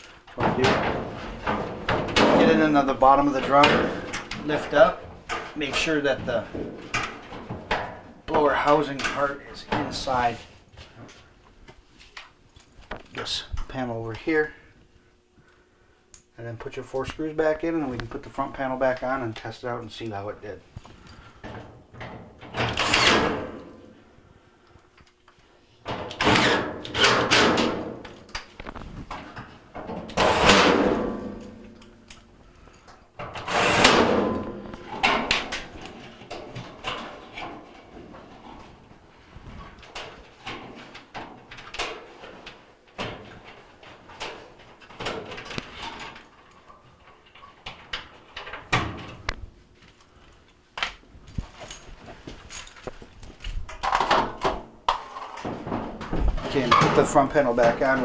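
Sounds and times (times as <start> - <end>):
metal panels scraping: 0.4 - 10.5, 22.4 - 23.9, 25.9 - 28.1, 29.8 - 32.1, 33.2 - 46.2, 53.8 - 58.0.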